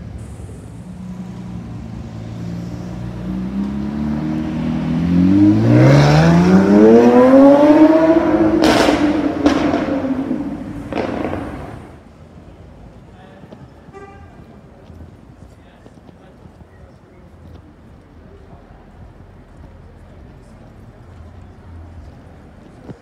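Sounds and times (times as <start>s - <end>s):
exhaust cracks: 0.3s - 12.1s
sports car engine revving: 0.6s - 12.0s.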